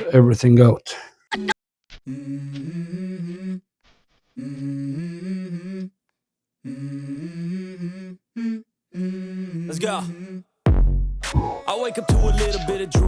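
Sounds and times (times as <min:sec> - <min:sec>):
person humming a melody: 0:02.1 - 0:03.6, 0:04.4 - 0:06.0, 0:06.6 - 0:10.5, 0:11.4 - 0:13.0.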